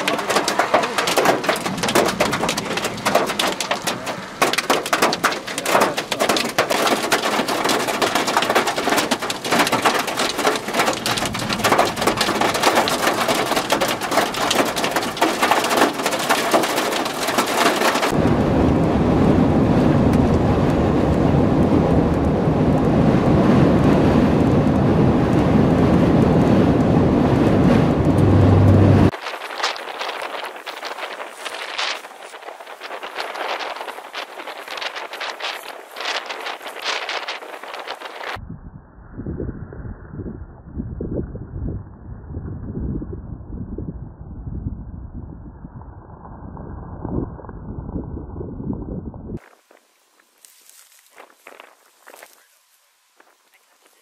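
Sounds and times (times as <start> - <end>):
hail and heavy rain falling: 0.0 - 18.3, 27.9 - 38.4
storm roar: 0.0 - 49.4.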